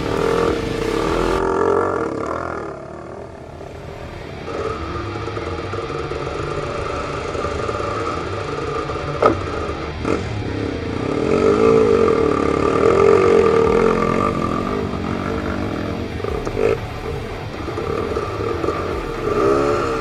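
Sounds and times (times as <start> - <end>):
dirt bike engine running: 0.0 - 20.0.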